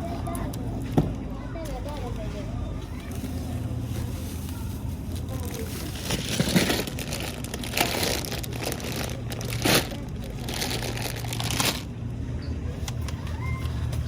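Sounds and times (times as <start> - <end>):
crinkling and rustling: 0.1 - 12.0.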